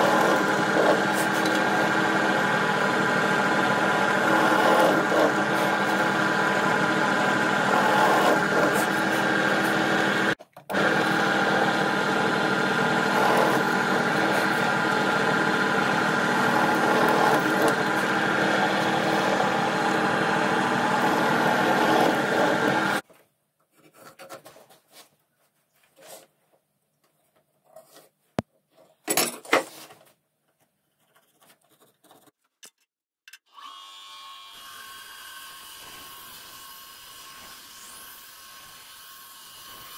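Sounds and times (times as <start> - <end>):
power tool motor running: 0.0 - 23.0.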